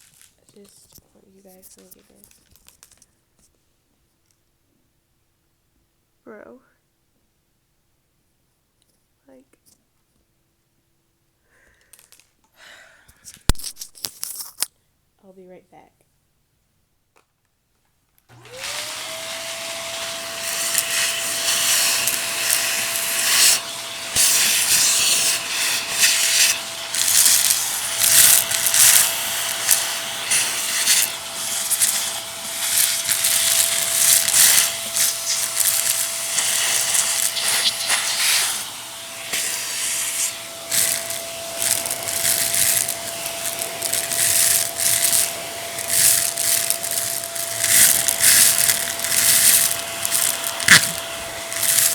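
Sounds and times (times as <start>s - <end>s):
vacuum cleaner motor whine: 18.3s - 51.9s.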